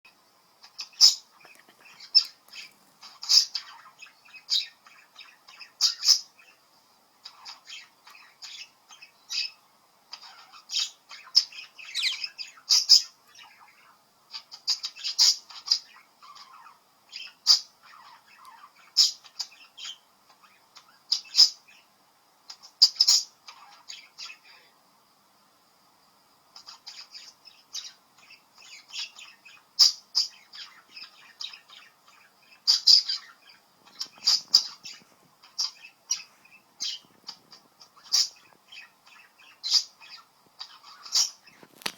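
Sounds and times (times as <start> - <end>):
budgerigar chirping and squawking: 0.6 - 6.6, 7.2 - 21.8, 22.5 - 24.6, 26.6 - 41.9
budgerigar squawks: 10.2 - 13.6
budgerigar warbling call: 10.2 - 20.0.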